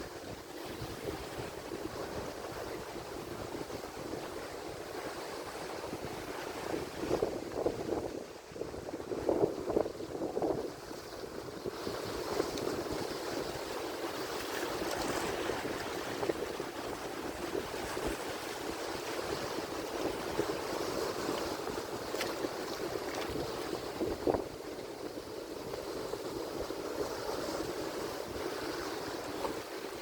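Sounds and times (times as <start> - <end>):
ocean waves breaking: 10.2 - 30.0.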